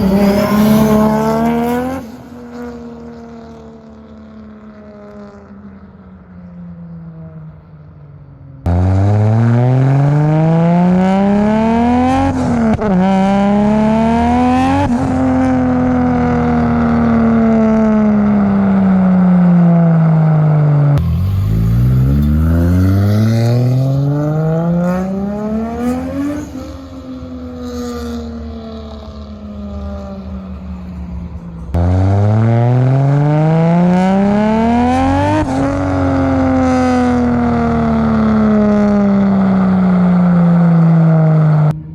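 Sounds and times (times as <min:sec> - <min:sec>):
car engine revving hard: 0:00.0 - 0:02.7, 0:21.0 - 0:26.8.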